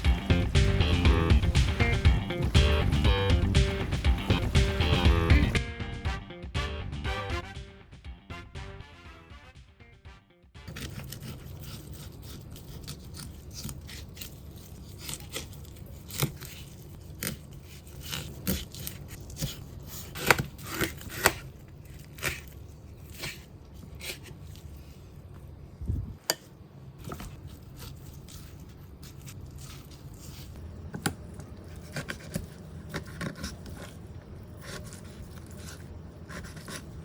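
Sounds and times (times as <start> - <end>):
steady low hum: 0.0 - 8.4, 10.6 - 37.0
food being cut with snips: 10.7 - 24.6.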